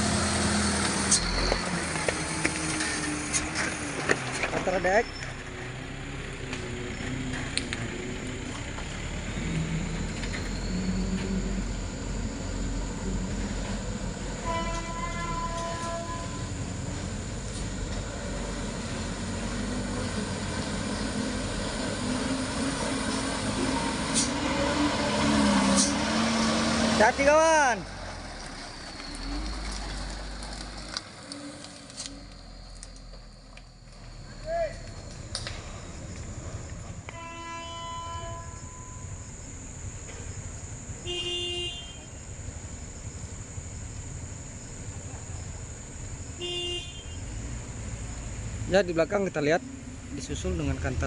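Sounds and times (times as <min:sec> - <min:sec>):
truck body rattling and creaking: 0:00.7 - 0:05.9
low engine rumble: 0:01.1 - 0:51.0.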